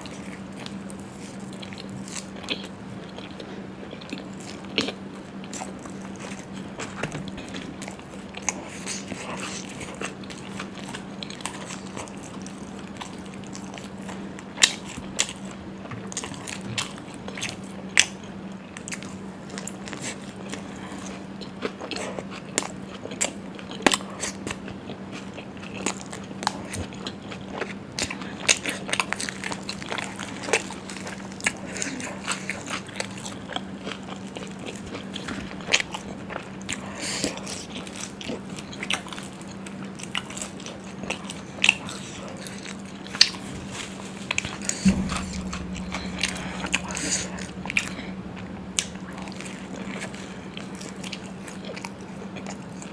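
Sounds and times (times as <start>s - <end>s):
steady low hum: 41.2s - 52.9s.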